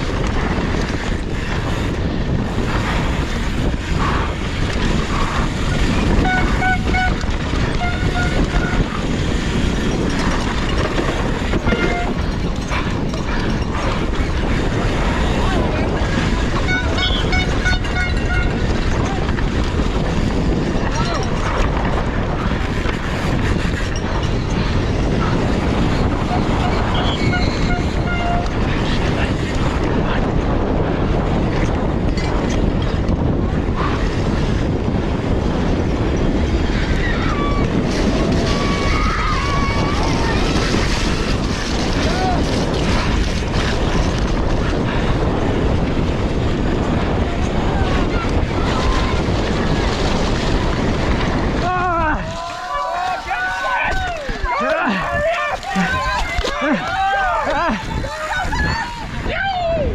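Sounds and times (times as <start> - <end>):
mountain bike rattling over trail: 0.0 - 59.3
wind buffeting microphone: 0.0 - 59.9
high squeal: 26.6 - 27.9.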